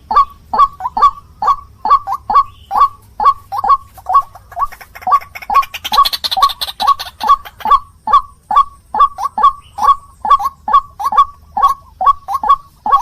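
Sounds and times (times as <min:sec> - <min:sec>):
waterhen harsh call: 0:00.0 - 0:13.0.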